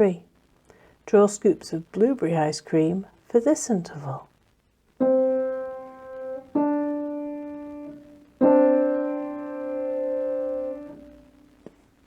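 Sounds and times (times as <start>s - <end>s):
piano notes ringing: 5.0s - 11.6s.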